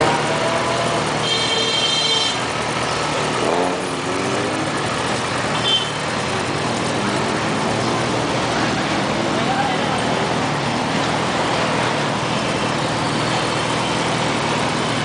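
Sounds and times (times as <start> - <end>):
street traffic noise: 0.0 - 15.0
vehicle engine running: 0.0 - 15.0.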